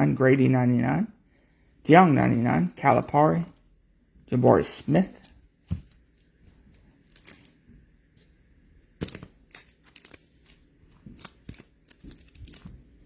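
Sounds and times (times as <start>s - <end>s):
trading cards rustling: 4.9s - 13.0s.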